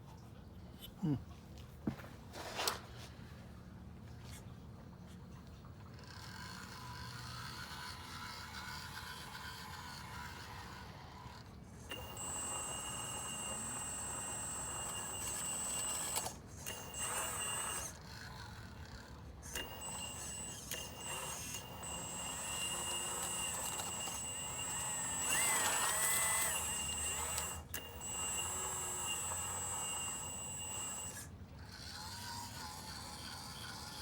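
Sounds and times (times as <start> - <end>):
high electric pump whine: 9.2 - 18.6, 19.5 - 31.4.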